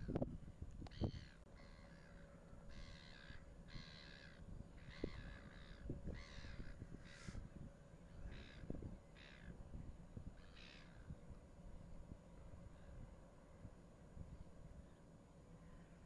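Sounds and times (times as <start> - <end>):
bird calling: 0.9 - 7.4, 8.2 - 9.5, 10.4 - 11.1.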